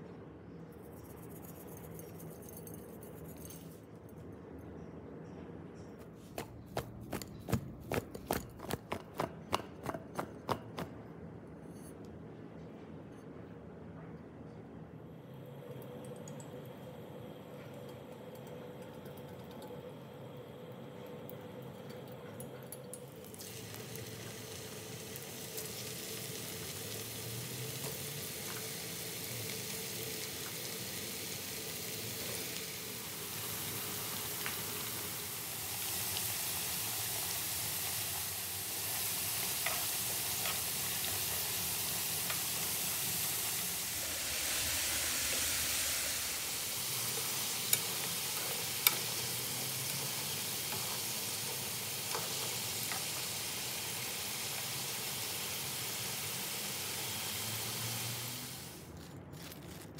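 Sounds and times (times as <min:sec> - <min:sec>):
food frying in hot oil: 0:17.6 - 0:59.8.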